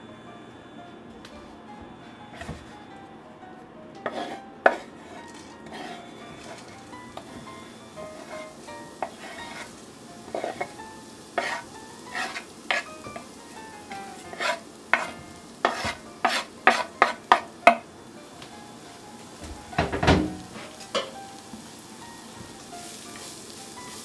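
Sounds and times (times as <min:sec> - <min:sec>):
utensil scraping a pan: 0:04.0 - 0:07.3, 0:08.1 - 0:09.7, 0:10.3 - 0:13.3, 0:14.1 - 0:17.8
meat sizzling in a frying pan: 0:05.7 - 0:24.0.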